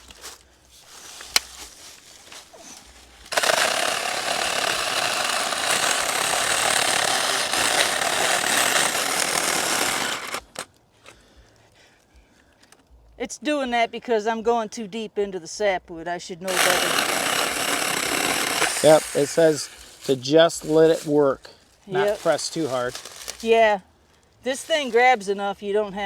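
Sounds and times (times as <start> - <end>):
electric chainsaw cutting wood: 2.7 - 10.7, 16.5 - 20.2, 21.9 - 23.6.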